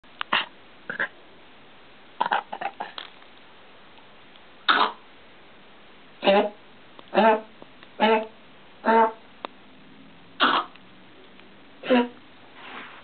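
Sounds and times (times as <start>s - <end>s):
small dog coughing: 4.7s - 5.0s, 10.4s - 10.7s.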